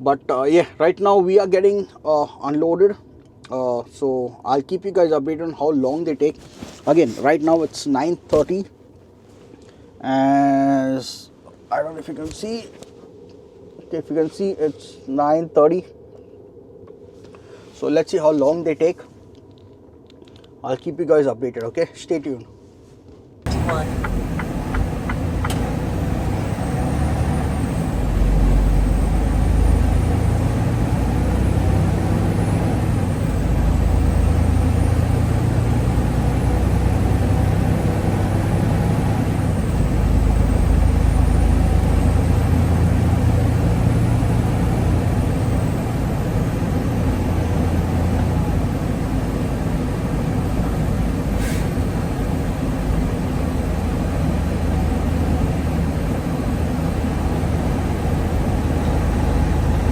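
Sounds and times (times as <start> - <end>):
truck engine drone: 23.5 - 59.9.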